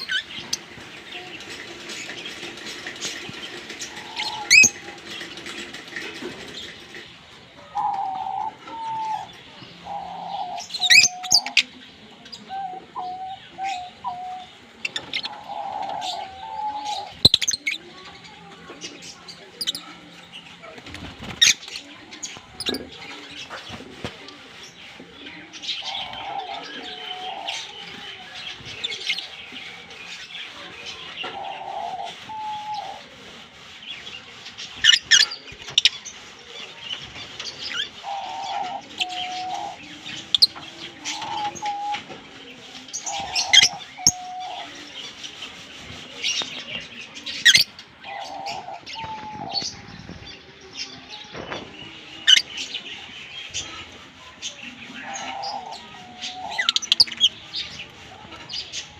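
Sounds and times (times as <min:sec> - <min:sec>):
lovebirds chirping and chattering: 0:00.0 - 0:58.9.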